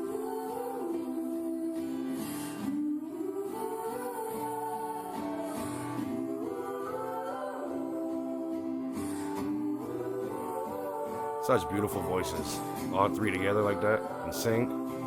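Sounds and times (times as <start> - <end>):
acoustic guitar: 0.0 - 15.0
voices singing in harmony: 0.0 - 15.0.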